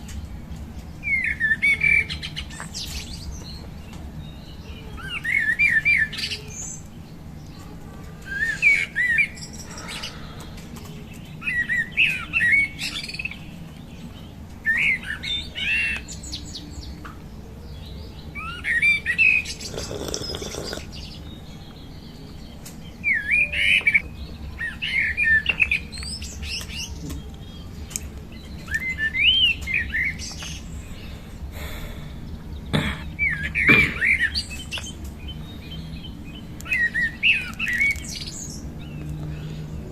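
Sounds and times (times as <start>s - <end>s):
low background hum: 0.0s - 39.9s
songbird warbling chirps: 8.2s - 39.9s.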